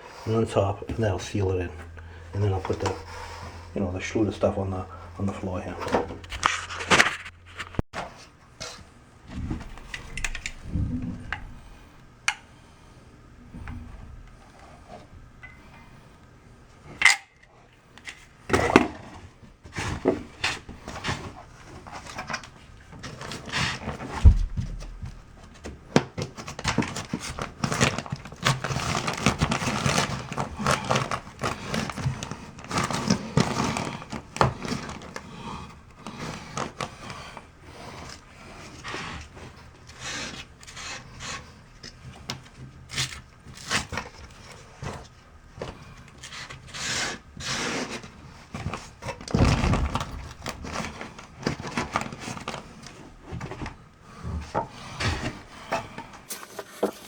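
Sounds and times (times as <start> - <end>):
scraping on building board: 5.8 - 8.8, 56.3 - 57.0.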